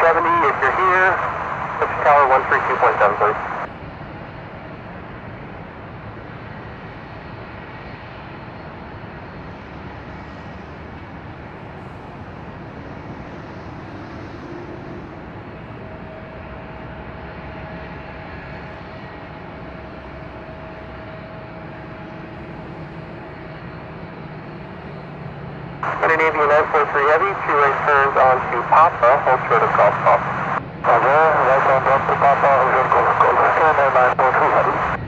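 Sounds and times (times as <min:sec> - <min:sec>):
jet engine rushing: 0:00.0 - 0:03.7, 0:25.8 - 0:35.0
faint steady whine: 0:00.0 - 0:03.8, 0:11.5 - 0:35.0.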